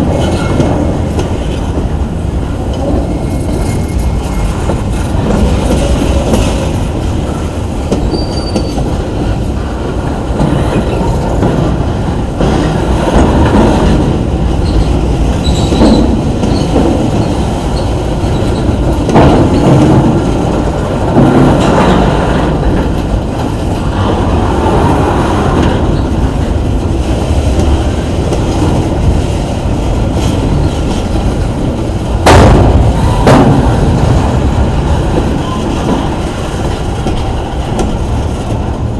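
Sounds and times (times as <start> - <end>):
wheels clacking over rail joints: 0.0 - 38.9
faint wheel squeal: 8.0 - 8.8.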